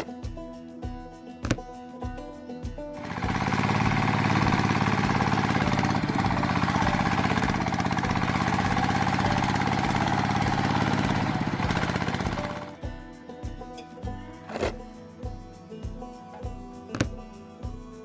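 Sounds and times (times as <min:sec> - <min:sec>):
small engine running: 0:03.0 - 0:12.8, 0:14.5 - 0:14.8.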